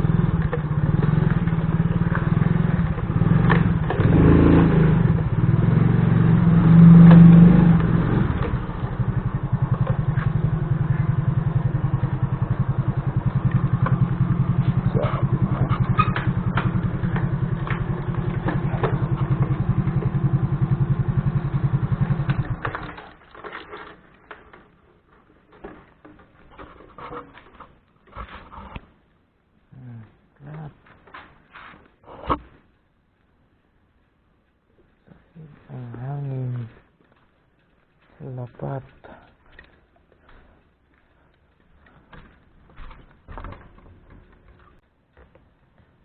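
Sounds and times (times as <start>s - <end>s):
hand tractor engine chugging: 7.5s - 23.2s.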